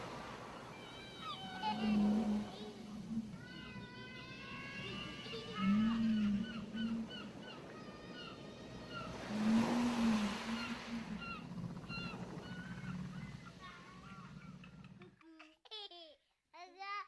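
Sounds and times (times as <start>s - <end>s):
surf washing on beach: 0.0s - 5.7s, 7.8s - 12.4s
whale moaning: 0.1s - 15.0s
small birds chirping: 0.5s - 15.1s.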